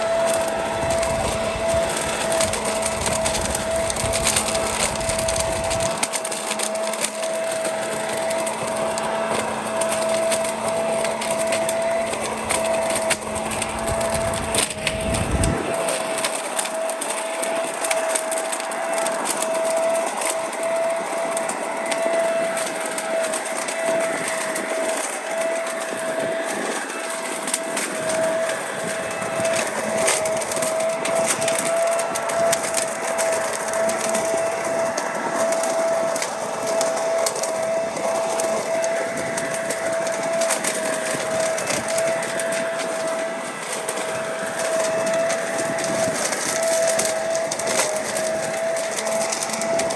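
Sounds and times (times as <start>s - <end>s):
leaf vacuum whining: 0.0s - 49.9s
leaves crackling and rattling: 0.0s - 49.9s.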